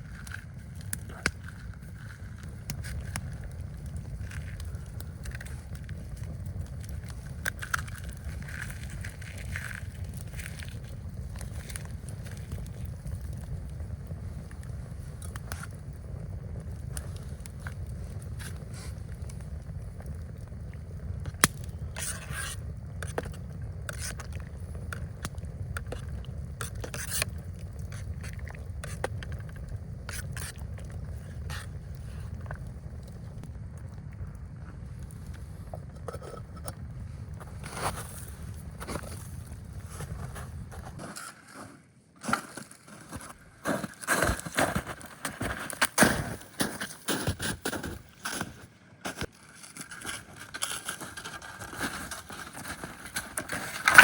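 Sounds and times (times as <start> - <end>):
low rumble of wind: 0.0 - 41.1
sharp crackles and scrapes: 0.0 - 54.0.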